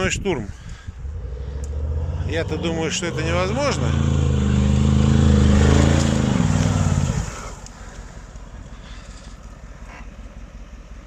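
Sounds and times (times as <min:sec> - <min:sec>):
engine idling low: 0:00.0 - 0:11.0
off-road engine revving hard: 0:00.8 - 0:08.1.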